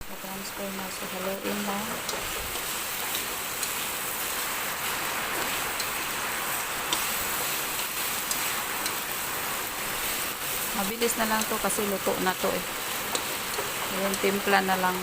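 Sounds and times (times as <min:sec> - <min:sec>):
food sizzling in hot oil: 0:00.0 - 0:15.0
light stirring clicks: 0:01.4 - 0:03.9, 0:05.3 - 0:06.2, 0:06.9 - 0:07.2, 0:07.8 - 0:09.1, 0:12.9 - 0:14.4.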